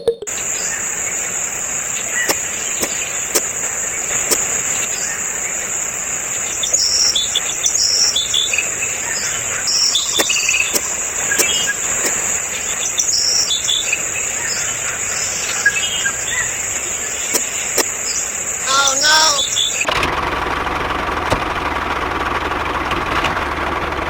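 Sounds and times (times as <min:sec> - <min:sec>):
birds chirping: 0:00.0 - 0:19.9
high-pitched insect drone: 0:00.3 - 0:19.9
sharp clicks: 0:01.9 - 0:05.0, 0:06.5 - 0:13.1, 0:17.2 - 0:18.2.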